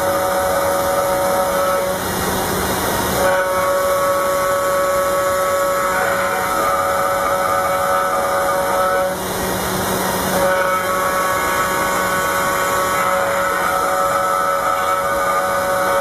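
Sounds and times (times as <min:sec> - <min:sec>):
router spindle high whine: 0:00.0 - 0:16.0
hissing cutting noise: 0:03.2 - 0:16.0.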